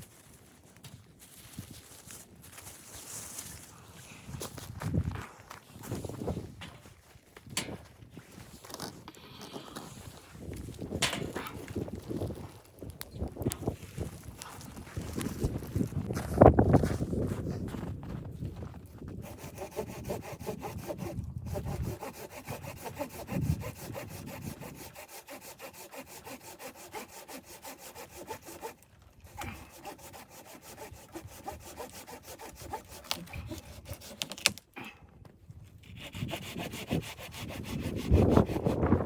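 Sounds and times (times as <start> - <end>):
saw cutting through wood: 19.1 - 34.5, 35.8 - 39.0.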